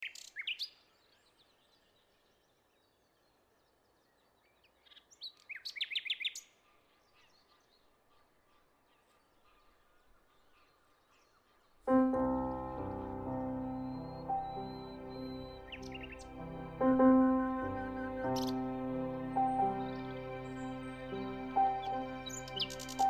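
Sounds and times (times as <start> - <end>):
songbirds chirping: 0.0 - 23.0
faint distant bird calls: 5.6 - 23.0.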